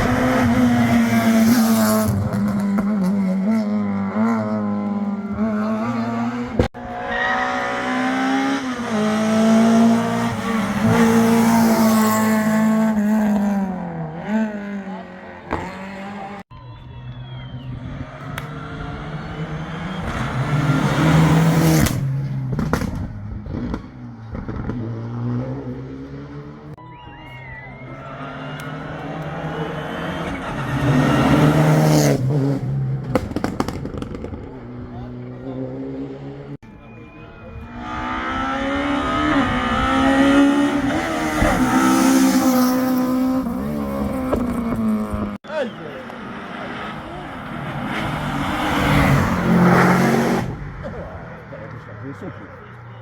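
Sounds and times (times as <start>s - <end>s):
rally car engine passing: 0.0s - 16.4s, 17.2s - 26.8s, 27.8s - 36.6s, 37.4s - 53.0s
sharp cracks: 33.0s - 34.5s.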